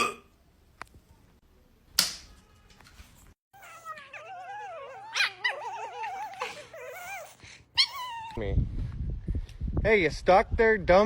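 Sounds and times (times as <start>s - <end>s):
dog whining and yowling: 3.5s - 8.4s
dog yelping: 3.5s - 8.4s.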